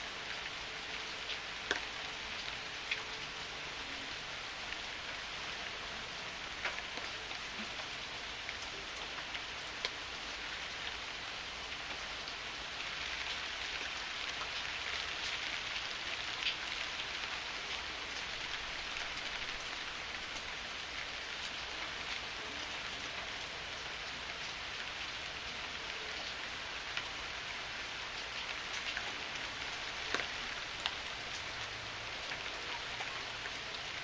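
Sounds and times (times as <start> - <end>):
heavy rain falling: 0.0 - 34.0
sharp raindrop ticks: 1.3 - 3.1, 13.0 - 20.5, 28.2 - 31.6.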